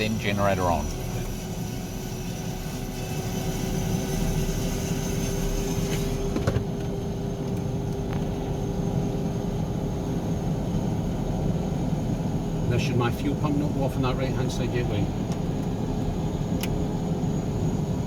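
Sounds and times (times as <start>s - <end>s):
turboprop engine idling: 0.0s - 18.0s.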